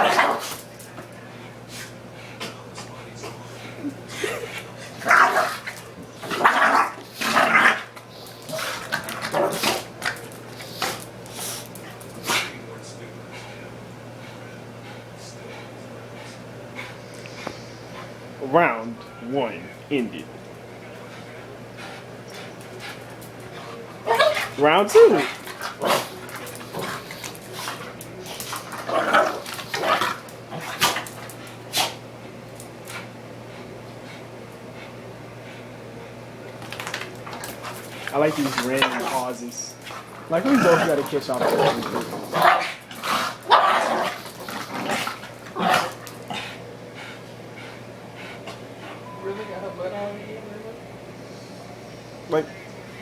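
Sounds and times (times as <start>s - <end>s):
puppies play-fighting: 0.0s - 19.2s, 19.8s - 49.1s
young dogs barking: 40.2s - 44.2s.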